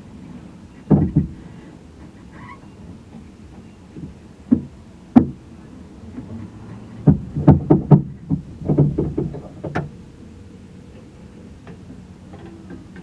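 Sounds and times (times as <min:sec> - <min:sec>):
knocks and thumps: 0:00.9 - 0:01.4, 0:04.0 - 0:05.4, 0:06.2 - 0:10.0.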